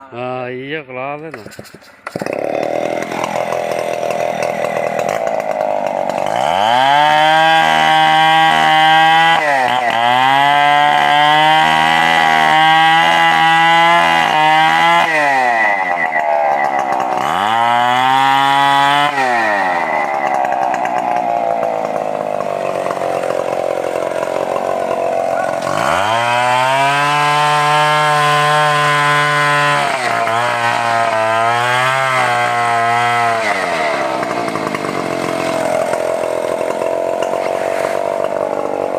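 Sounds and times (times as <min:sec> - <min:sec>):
chainsaw revving and idling: 0:02.0 - 0:38.9.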